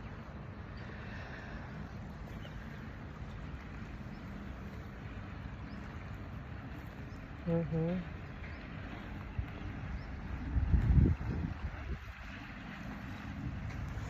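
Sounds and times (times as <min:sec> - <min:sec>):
wind buffeting microphone: 0:08.0 - 0:14.0.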